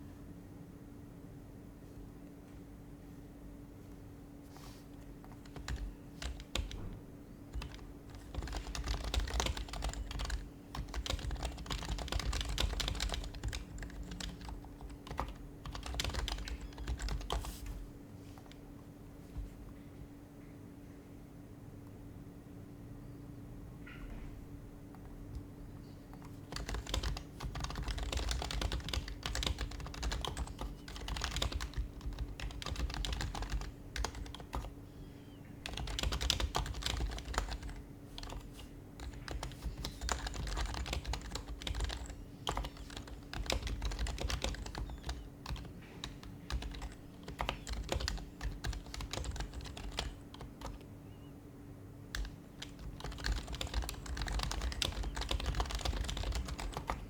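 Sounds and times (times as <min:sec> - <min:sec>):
faint steady hum: 0:00.0 - 0:57.0
fast typing on keyboard: 0:05.2 - 0:17.7, 0:26.2 - 0:34.8, 0:35.6 - 0:51.2, 0:52.1 - 0:57.0.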